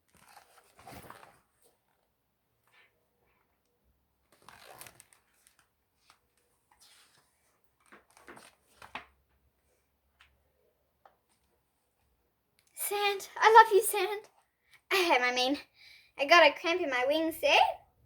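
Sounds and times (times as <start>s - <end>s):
paper pages rustling: 0.0s - 2.0s, 4.3s - 10.4s
soft clicks of pages turning: 0.0s - 12.8s.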